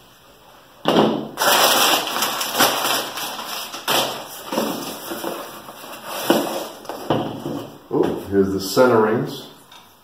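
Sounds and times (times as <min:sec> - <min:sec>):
packing rustling: 0:01.4 - 0:07.8.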